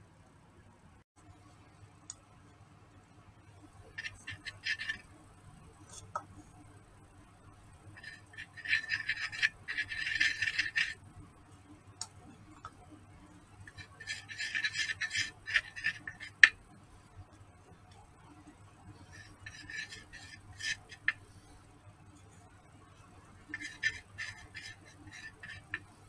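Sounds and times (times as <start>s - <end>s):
stick scraping and clicking in resin: 4.0s - 5.1s, 8.0s - 11.0s, 13.7s - 16.6s, 19.1s - 21.4s, 23.4s - 26.0s.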